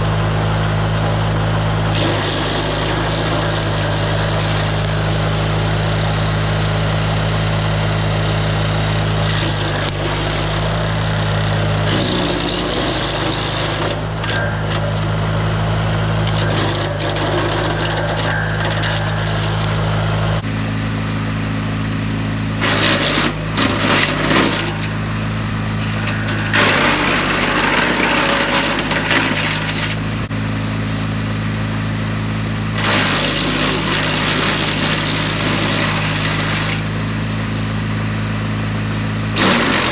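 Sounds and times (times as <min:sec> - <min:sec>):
wood chipper engine running: 0:00.0 - 0:39.9
branches grinding and crackling: 0:13.8 - 0:39.9.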